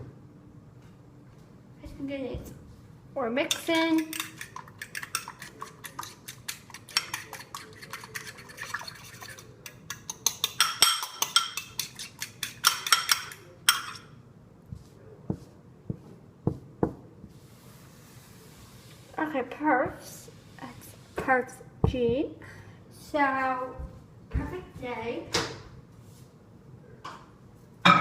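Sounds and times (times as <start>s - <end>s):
egg beaten in a bowl: 3.5s - 14.0s.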